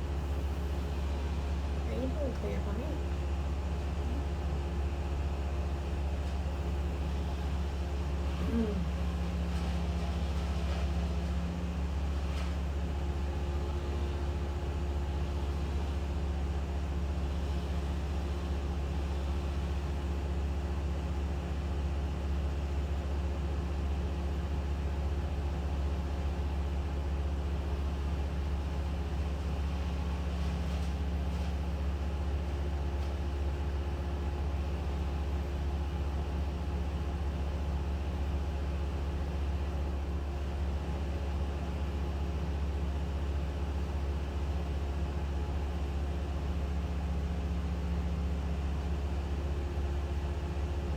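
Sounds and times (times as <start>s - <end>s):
engine running steadily: 0.0s - 50.9s.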